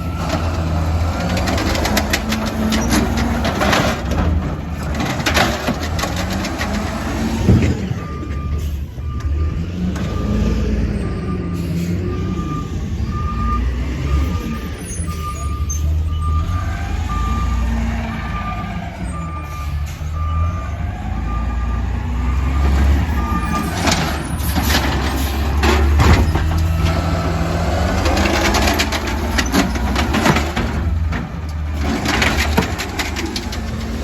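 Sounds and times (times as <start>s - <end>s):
reversing alarm beeping: 7.5s - 24.6s
clattering and knocking: 23.7s - 34.0s.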